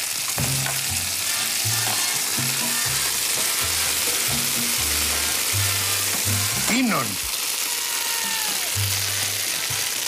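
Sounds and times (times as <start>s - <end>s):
dried fruit sizzling in pan: 0.0s - 10.0s
background music with bass: 0.4s - 7.1s, 8.8s - 9.4s.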